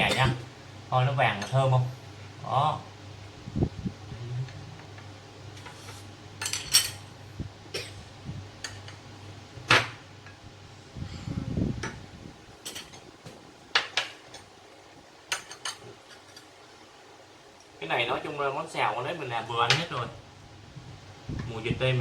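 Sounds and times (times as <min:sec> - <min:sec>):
utensils clinking on plates: 0:05.6 - 0:07.2, 0:08.6 - 0:09.0, 0:12.6 - 0:13.1, 0:15.3 - 0:16.5.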